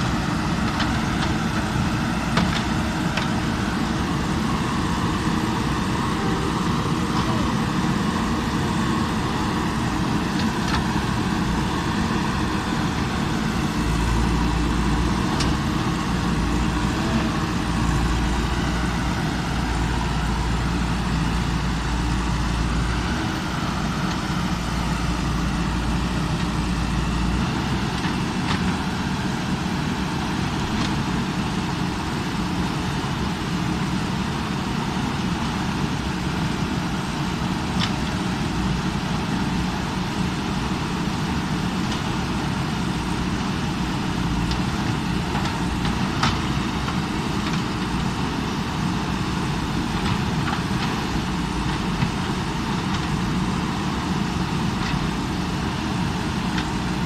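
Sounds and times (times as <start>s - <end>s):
backhoe diesel engine running: 0.0s - 57.0s.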